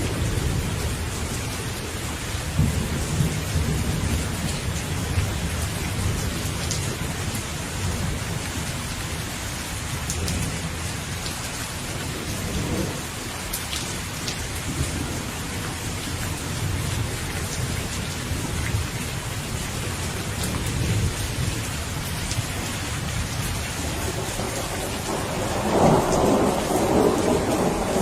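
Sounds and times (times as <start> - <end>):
heavy rain: 0.0 - 28.0
rolling thunder: 2.5 - 7.2, 19.8 - 28.0.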